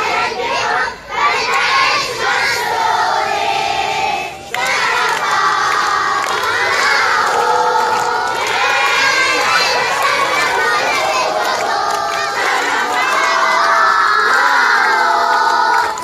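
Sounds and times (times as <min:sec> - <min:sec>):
children shouting in unison: 0:06.0 - 0:16.0.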